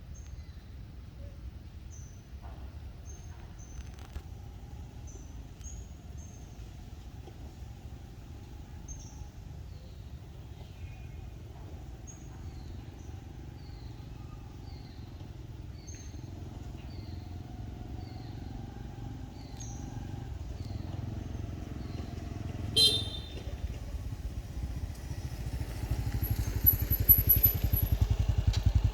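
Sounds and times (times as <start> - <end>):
vehicle engine rumbling: 0.0 - 28.9.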